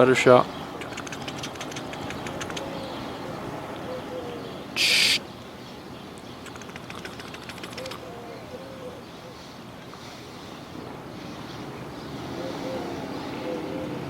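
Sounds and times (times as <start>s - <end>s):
bird hooting or cooing: 3.8s - 5.2s, 7.0s - 9.6s, 12.2s - 14.0s
loud hiss: 4.8s - 5.2s.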